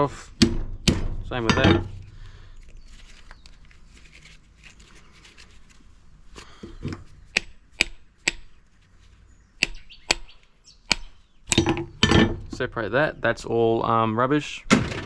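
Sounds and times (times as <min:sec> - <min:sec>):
handling and scraping of parts: 0:00.0 - 0:09.4, 0:11.5 - 0:12.9
hammer knocking on metal part: 0:00.4 - 0:02.0, 0:10.9 - 0:12.6.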